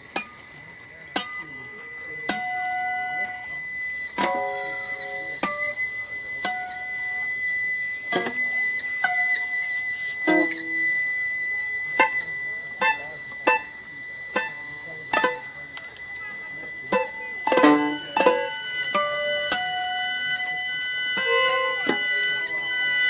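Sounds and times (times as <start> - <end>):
held high violin tone: 0.0 - 23.0
plucked and struck guitar notes: 0.0 - 23.0.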